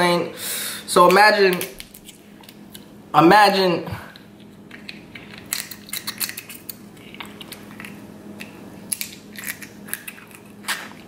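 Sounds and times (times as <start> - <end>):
faint steady hum: 0.0 - 11.0
person chewing crab meat: 4.1 - 11.0.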